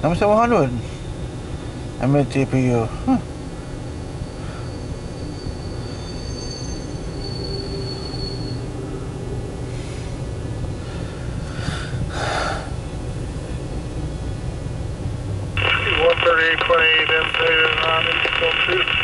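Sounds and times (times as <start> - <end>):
high wheel squeal: 4.3 - 8.7.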